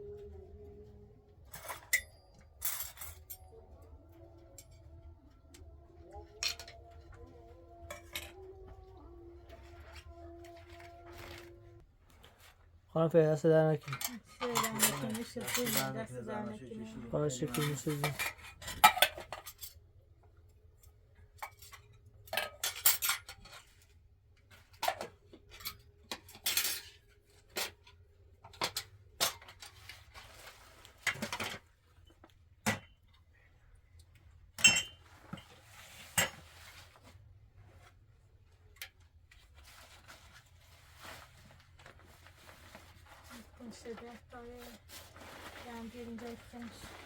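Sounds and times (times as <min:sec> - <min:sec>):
cutlery clinking on plates: 0:34.6 - 0:35.4.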